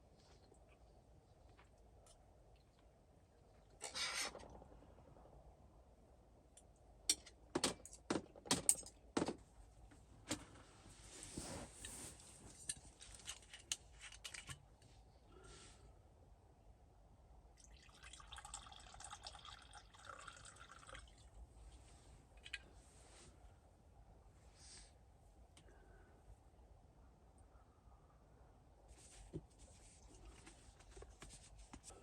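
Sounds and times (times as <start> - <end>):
liquid pouring and dripping: 17.6 - 21.4.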